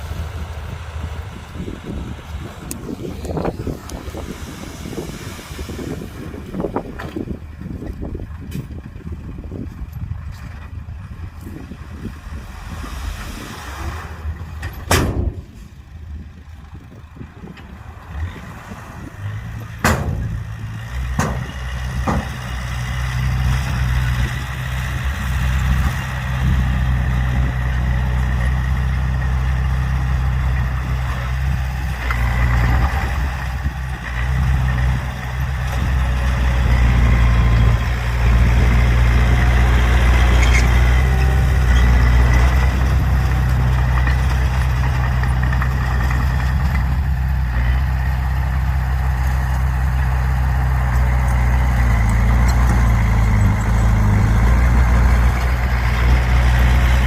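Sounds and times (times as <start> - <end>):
engine rumbling: 0.0 - 57.0
sharp knocks: 19.8 - 20.4, 21.2 - 22.4.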